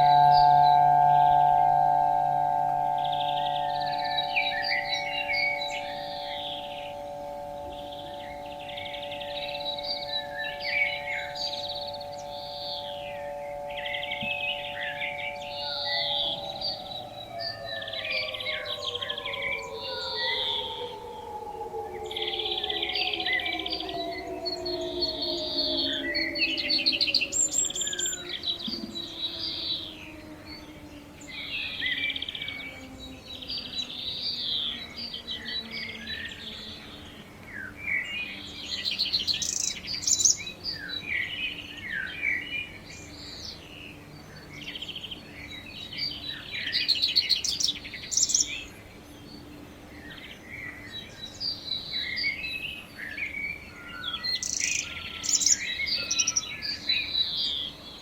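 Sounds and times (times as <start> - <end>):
warning siren winding down: 0.0 - 42.9
songbirds chirping and singing: 0.0 - 58.0.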